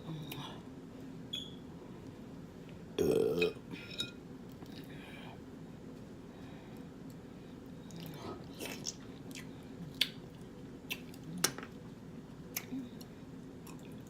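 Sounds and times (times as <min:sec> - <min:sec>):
person chewing food: 0:07.0 - 0:11.5, 0:12.3 - 0:14.0
wet mouth clicks: 0:10.9 - 0:11.6.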